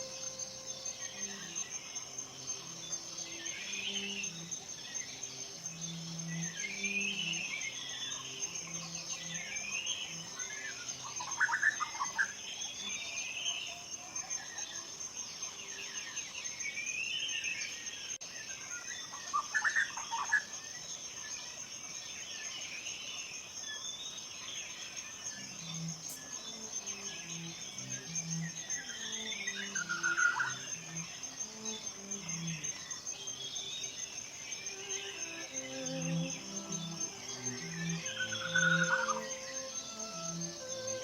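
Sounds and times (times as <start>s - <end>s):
high insect drone: 0.0s - 41.0s.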